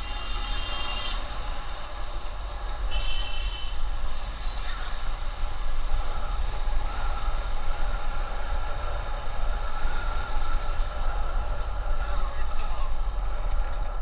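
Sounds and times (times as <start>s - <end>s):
road and engine noise: 0.0s - 14.0s.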